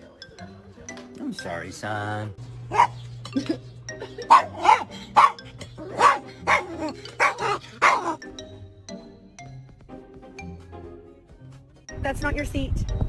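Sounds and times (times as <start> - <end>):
background music: 0.0 - 13.0
dog barking: 2.7 - 3.0, 4.3 - 8.2.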